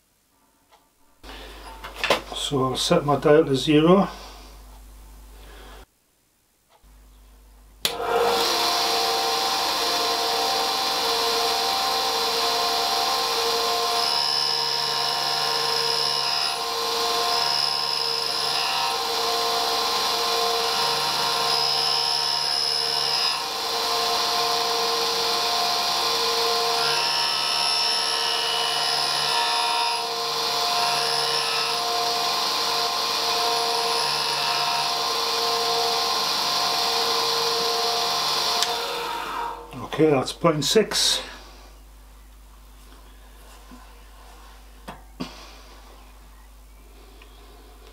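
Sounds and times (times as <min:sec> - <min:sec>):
grinder machine hum: 0:07.8 - 0:39.8.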